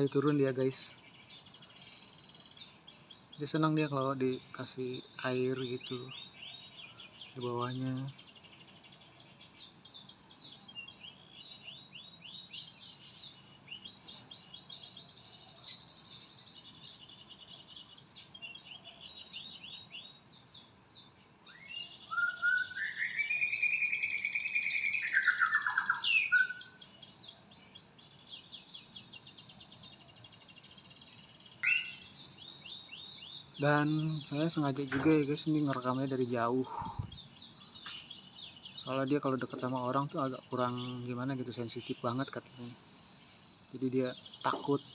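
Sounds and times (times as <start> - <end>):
songbirds chirping in trills: 0.0 - 44.9
warbling bird call: 31.6 - 32.1, 33.6 - 38.1.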